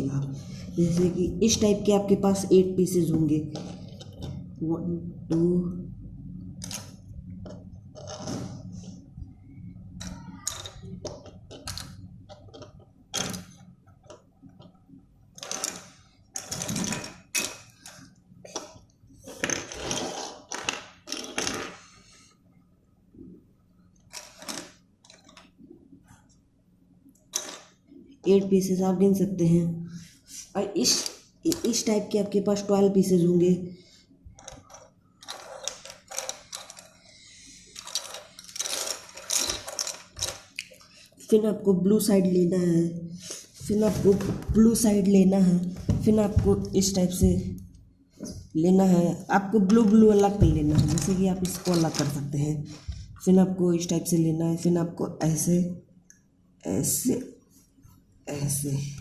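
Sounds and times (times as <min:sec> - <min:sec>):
faint low hum: 0:00.0 - 0:59.0
plastic pieces clicking and clattering: 0:15.4 - 0:18.8, 0:19.4 - 0:21.8, 0:24.1 - 0:25.5, 0:27.3 - 0:27.7, 0:34.4 - 0:37.0, 0:37.8 - 0:40.8, 0:50.7 - 0:52.2
plastic puzzle pieces clicking: 0:20.5 - 0:21.8, 0:34.4 - 0:36.9, 0:37.8 - 0:40.8.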